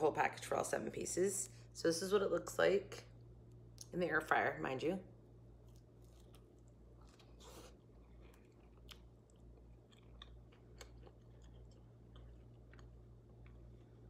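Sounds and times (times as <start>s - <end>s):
faint chewing: 5.6s - 14.0s.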